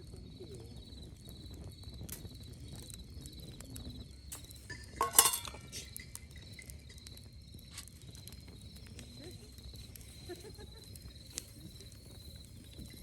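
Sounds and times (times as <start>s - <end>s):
insects chirping: 0.1s - 13.0s
clinking clatter: 4.7s - 5.9s.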